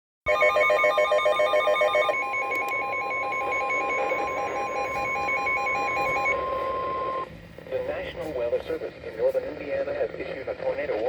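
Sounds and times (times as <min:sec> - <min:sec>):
electronic beeping: 0:00.3 - 0:07.3
fast-pulsing electronic alarm: 0:00.3 - 0:07.3
steady high alarm tone: 0:00.3 - 0:07.3.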